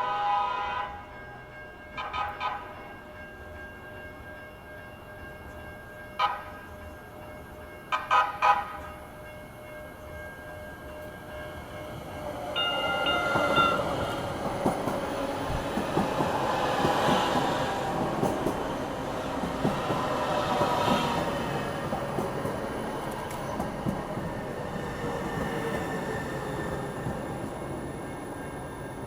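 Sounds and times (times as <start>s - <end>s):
train horn blast: 0.0s - 1.2s, 2.0s - 2.8s, 7.9s - 8.9s
light rail train running: 0.0s - 29.0s
clacks over rail joints: 13.2s - 24.4s.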